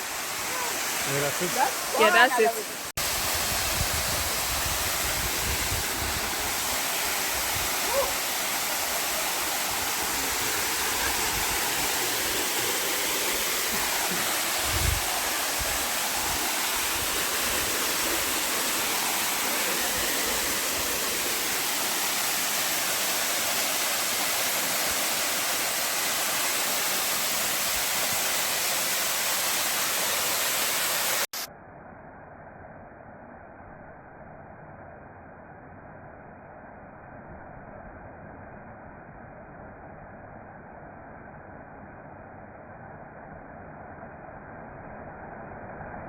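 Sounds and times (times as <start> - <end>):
waterfall roaring: 0.0 - 31.4.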